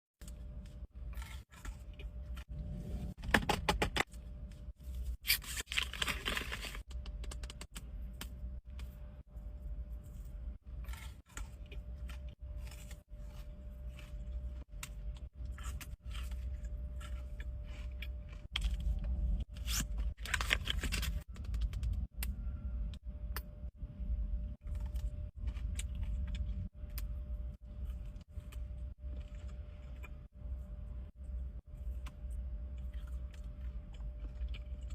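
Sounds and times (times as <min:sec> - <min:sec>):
faint steady hum: 0:00.2 - 0:34.9
wrapper crinkling: 0:05.3 - 0:06.8.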